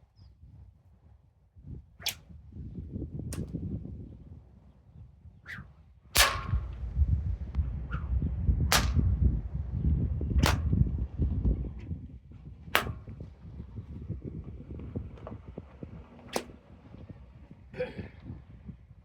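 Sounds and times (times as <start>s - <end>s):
wind buffeting microphone: 0.2s - 19.0s
whip cracking: 2.0s - 2.3s, 5.5s - 6.9s, 8.7s - 9.1s, 10.4s - 10.8s, 12.7s - 13.2s, 16.3s - 16.6s.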